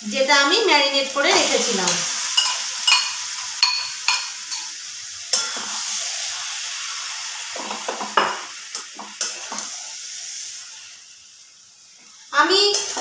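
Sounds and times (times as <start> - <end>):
food sizzling in a pan: 0.0 - 13.0
spatula scraping a pan: 5.3 - 6.3, 7.6 - 10.4, 12.5 - 13.0.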